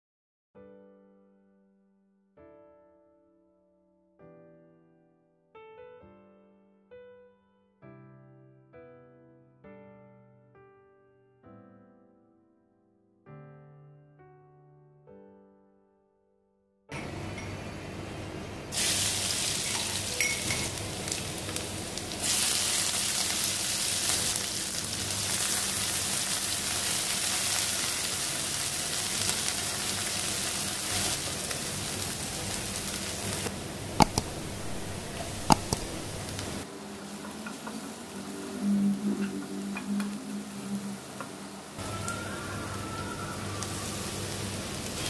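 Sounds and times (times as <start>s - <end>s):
food sizzling in hot oil: 18.7s - 36.6s, 43.3s - 45.0s
sharp knocks: 34.0s - 36.2s
wooden spatula stirring: 34.0s - 36.4s.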